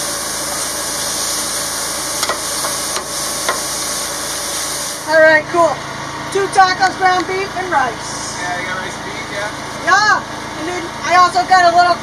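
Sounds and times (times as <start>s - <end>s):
food sizzling: 0.0s - 5.3s.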